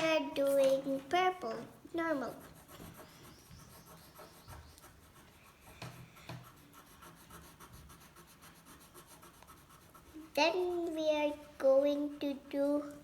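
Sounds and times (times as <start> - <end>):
pencil scratching on paper: 2.2 - 12.4
pencil taps: 5.7 - 6.6.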